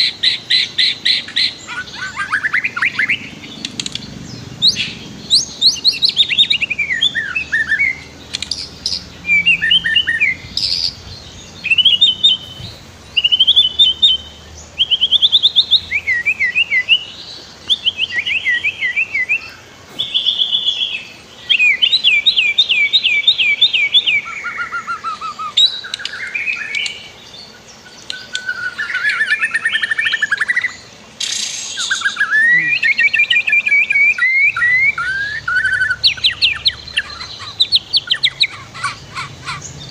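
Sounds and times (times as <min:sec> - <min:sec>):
songbird whistles and trills: 0:00.0 - 0:39.9.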